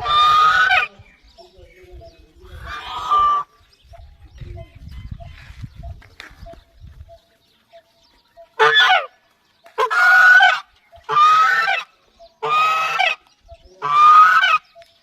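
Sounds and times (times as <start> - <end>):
large bird honking: 0.0 - 0.9, 2.5 - 3.6, 8.4 - 9.2, 9.8 - 14.7.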